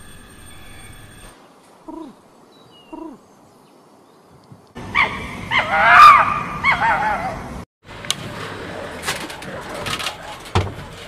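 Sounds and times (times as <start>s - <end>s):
fox yelps and whines: 5.0s - 7.4s.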